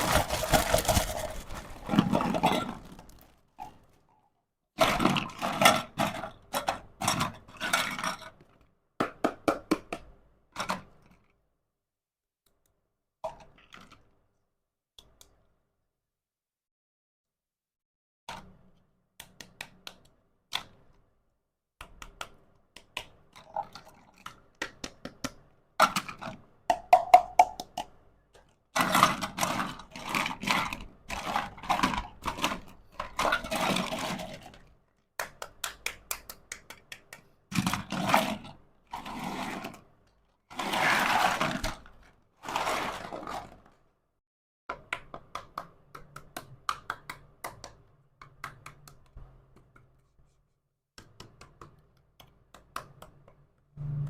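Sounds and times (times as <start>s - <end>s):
scraping and rustling packaging: 0.0s - 4.0s, 28.8s - 34.6s, 40.5s - 43.8s
small plastic clicks and taps: 51.0s - 53.5s.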